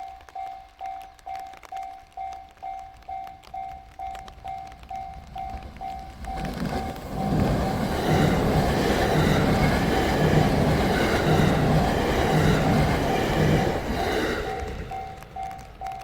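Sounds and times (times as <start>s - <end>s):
crossing warning bell ringing: 0.0s - 16.0s
train wheels rushing on rail: 3.2s - 16.0s.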